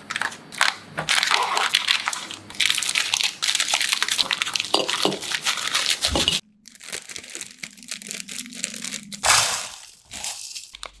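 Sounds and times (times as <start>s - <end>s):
packaging crinkling: 6.6s - 11.0s
packaging tearing rip: 6.7s - 10.6s.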